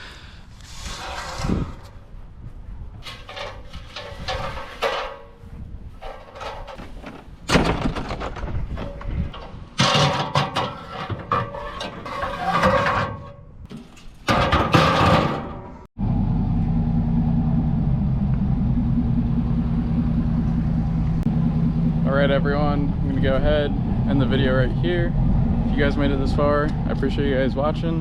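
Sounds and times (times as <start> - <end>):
knocks bangs and scraping clatter: 3.0 - 15.9
road noise: 15.6 - 28.0
pickup truck engine: 16.0 - 28.0.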